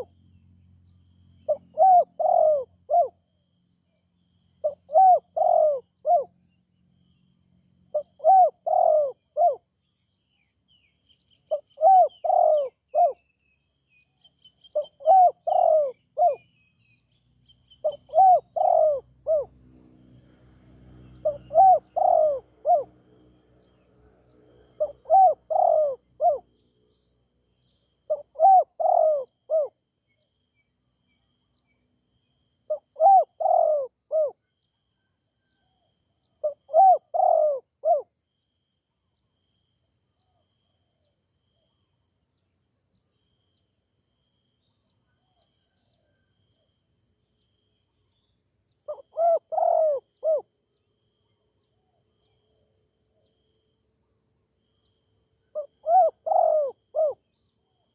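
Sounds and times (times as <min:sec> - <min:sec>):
faint small birds chirping: 0:00.0 - 0:19.8, 0:20.7 - 0:57.9
dove cooing: 0:01.4 - 0:03.2, 0:04.6 - 0:06.3, 0:07.9 - 0:09.6, 0:11.5 - 0:13.2, 0:14.7 - 0:16.5, 0:17.8 - 0:19.6, 0:21.2 - 0:23.0, 0:24.7 - 0:26.4, 0:28.1 - 0:29.8, 0:32.7 - 0:34.4, 0:36.4 - 0:38.1, 0:48.9 - 0:50.5, 0:55.5 - 0:57.3.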